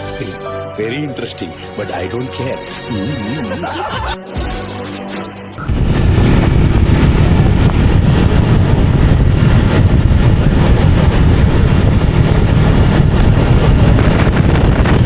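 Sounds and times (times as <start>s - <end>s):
motorcycle engine rumbling: 5.6s - 15.0s.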